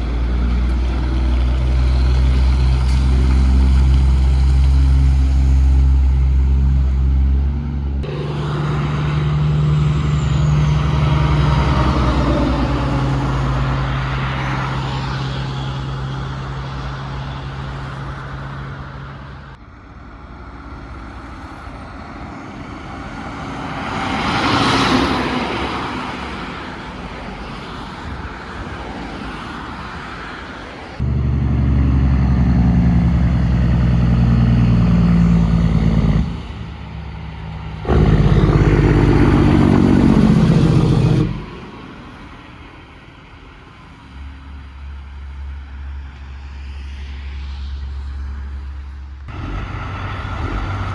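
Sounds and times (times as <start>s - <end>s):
truck engine humming: 0.0s - 19.6s, 31.0s - 43.4s, 49.3s - 50.9s
trucks driving past: 0.0s - 50.9s.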